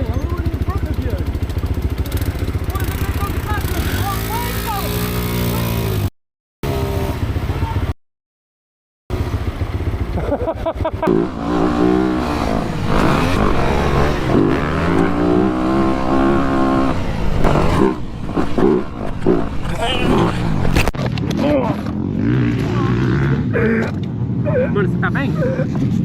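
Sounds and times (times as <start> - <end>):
motorcycle engine revving: 0.0 - 7.8, 11.0 - 21.0.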